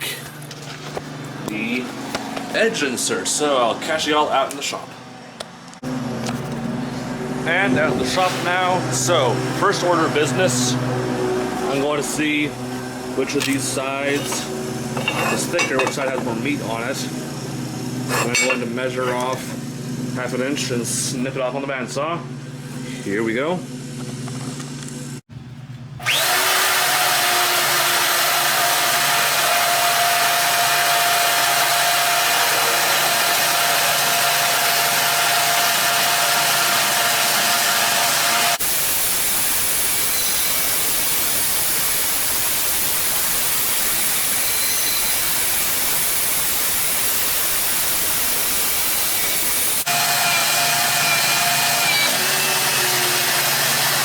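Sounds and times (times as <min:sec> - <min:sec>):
bandsaw cutting steel: 0:07.4 - 0:17.1, 0:17.9 - 0:19.6, 0:26.0 - 0:54.0.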